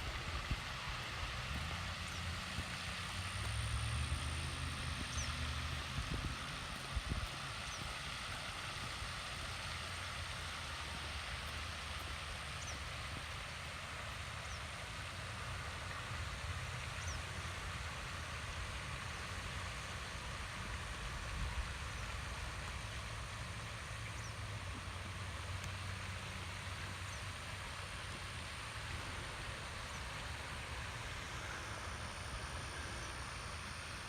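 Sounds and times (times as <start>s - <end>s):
even hiss: 16.8s - 34.0s.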